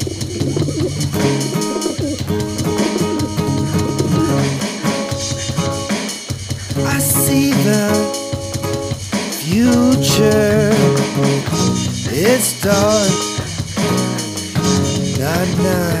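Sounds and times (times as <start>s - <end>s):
snare drum rimshots: 0.0s - 6.4s
band playing a song: 0.0s - 16.0s
bass drum: 0.0s - 16.0s.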